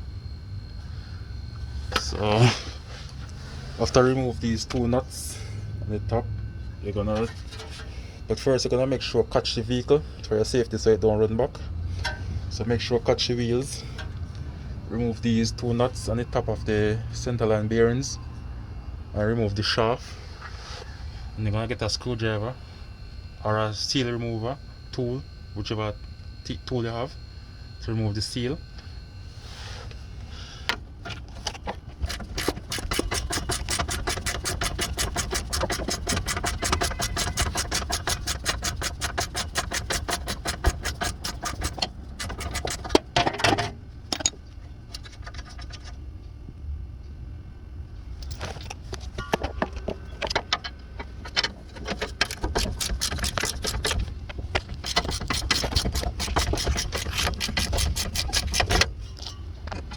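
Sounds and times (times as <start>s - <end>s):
ratchet wrench clicking: 32.1s - 42.9s, 52.0s - 54.0s, 54.7s - 58.8s.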